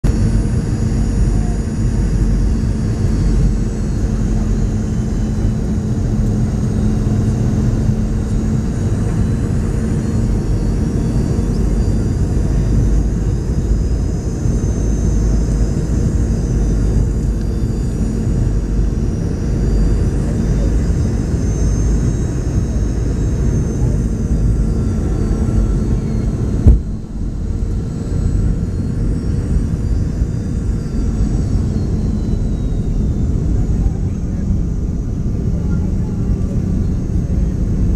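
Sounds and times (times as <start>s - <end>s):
jet engine hum and whine: 0.0s - 37.9s
jet cabin airflow rush: 21.8s - 31.2s
sudden thump: 26.6s - 27.2s.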